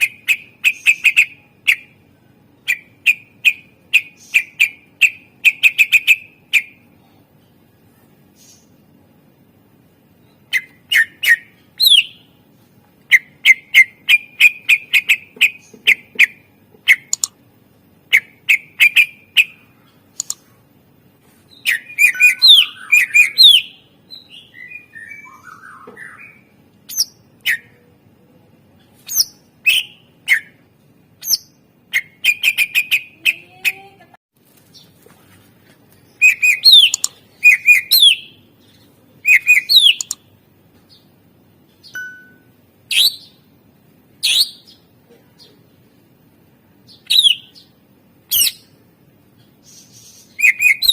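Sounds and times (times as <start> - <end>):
bird chirping and whistling: 0.0 - 1.9, 2.7 - 6.8, 10.2 - 12.3, 18.1 - 19.6, 21.5 - 27.8, 29.1 - 30.6, 31.2 - 33.4, 36.2 - 38.4, 39.2 - 40.2, 41.8 - 43.4, 44.2 - 44.8, 46.9 - 47.6, 48.3 - 48.7, 49.9 - 50.9.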